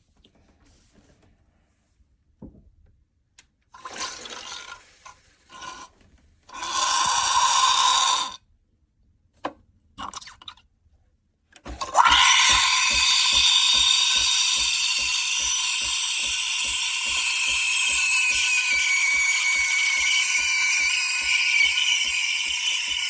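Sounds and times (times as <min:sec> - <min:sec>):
espresso machine steam wand hissing: 0:06.5 - 0:08.4, 0:12.0 - 0:23.0.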